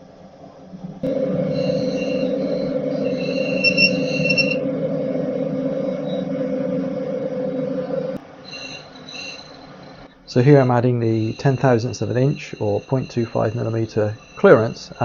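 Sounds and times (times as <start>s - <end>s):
metal lathe running: 1.0s - 15.0s
high-pitched tool squeal: 1.1s - 4.7s, 5.7s - 6.7s, 8.4s - 15.0s.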